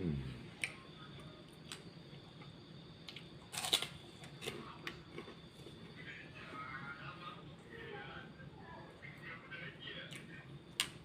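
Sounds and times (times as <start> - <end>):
crunchy bite: 3.0 - 5.5
chewing clicks: 10.1 - 11.0.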